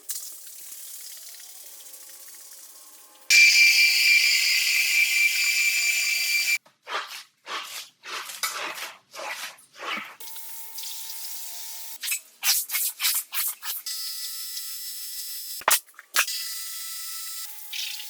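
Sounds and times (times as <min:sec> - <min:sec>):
cleaning machine hissing: 0:03.3 - 0:06.6
scrubbing wet carpet: 0:06.8 - 0:10.2.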